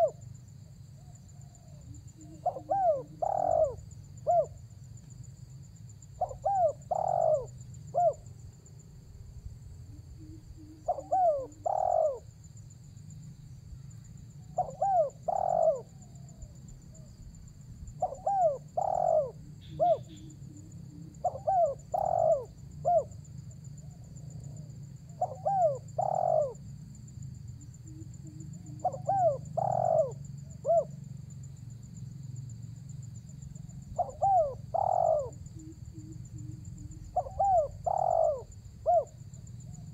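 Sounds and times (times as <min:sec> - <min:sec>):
dove cooing: 0:00.0 - 0:00.2, 0:01.0 - 0:04.6, 0:06.2 - 0:08.3, 0:09.9 - 0:12.3, 0:14.4 - 0:17.1, 0:18.0 - 0:23.2, 0:23.8 - 0:26.6, 0:27.8 - 0:31.0, 0:33.9 - 0:39.9.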